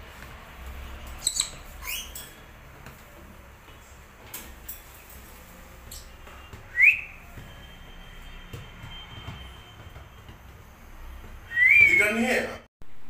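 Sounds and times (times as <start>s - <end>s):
pet birds chirping: 1.1s - 2.3s.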